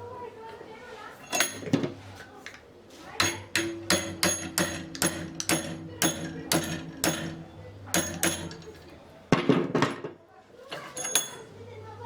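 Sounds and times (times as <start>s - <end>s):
hammer striking metal: 3.2s - 8.8s.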